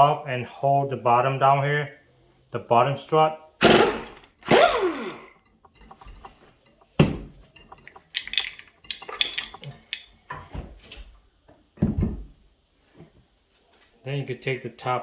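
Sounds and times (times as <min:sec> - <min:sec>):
metal parts clinking: 0:07.9 - 0:10.0.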